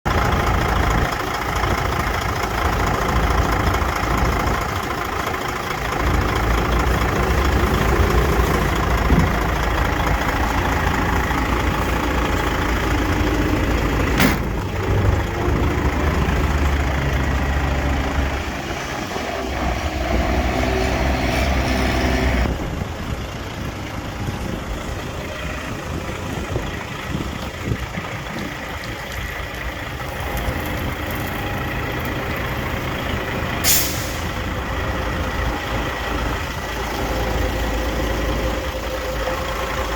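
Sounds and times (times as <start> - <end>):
truck diesel engine running: 0.0 - 39.9.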